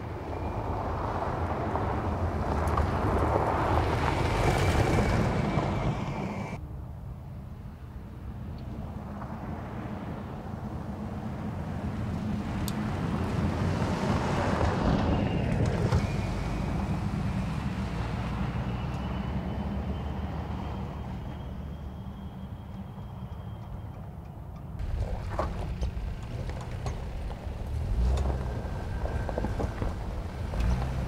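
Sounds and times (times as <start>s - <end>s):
truck driving past on dirt: 0.0s - 6.6s, 8.4s - 24.2s, 24.8s - 31.0s.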